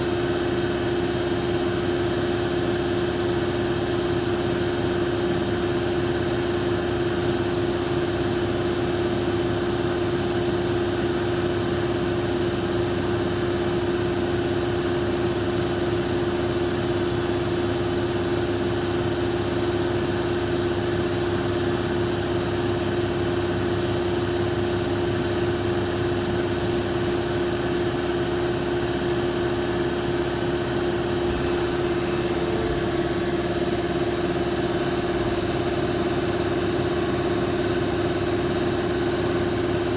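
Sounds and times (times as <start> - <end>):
lathe machine hum: 28.4 - 39.9.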